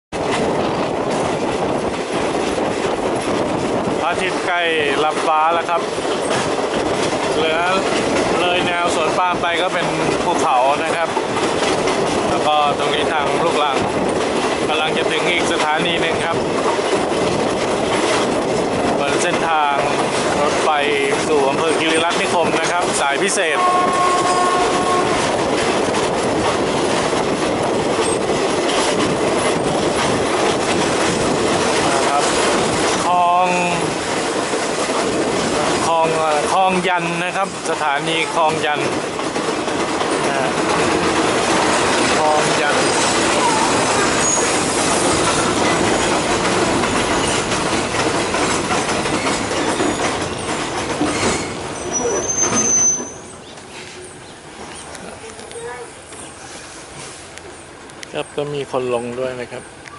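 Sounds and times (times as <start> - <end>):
wheels rushing on rail: 0.1 - 59.9
rail joint clicks: 0.2 - 59.9
brief high squeal: 51.8 - 53.3.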